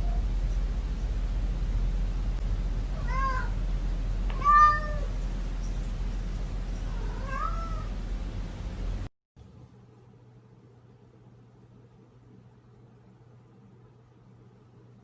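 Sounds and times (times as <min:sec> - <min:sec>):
steady low hum: 0:00.0 - 0:15.0
cat meowing: 0:02.9 - 0:03.6, 0:04.3 - 0:05.2, 0:06.9 - 0:07.9.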